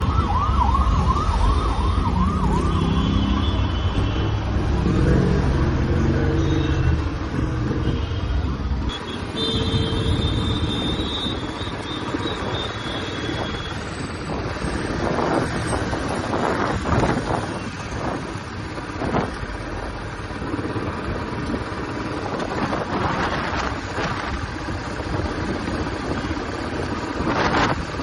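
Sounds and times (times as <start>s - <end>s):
siren wailing: 0.0s - 3.6s.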